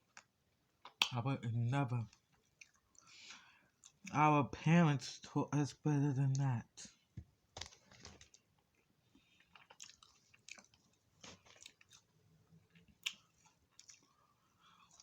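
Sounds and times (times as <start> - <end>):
person chewing food: 2.1 - 4.1, 7.6 - 15.0.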